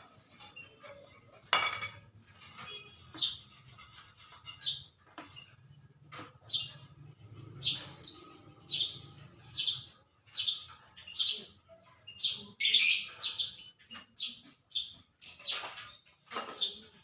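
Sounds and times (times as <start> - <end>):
bird chirping: 2.4 - 17.0.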